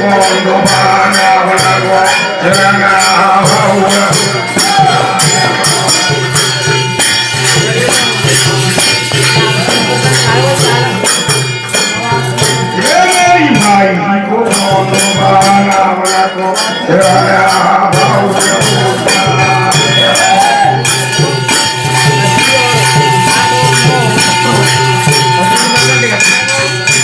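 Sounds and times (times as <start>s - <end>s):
percussion beat with jingles: 0.0s - 27.0s
person singing: 0.0s - 27.0s.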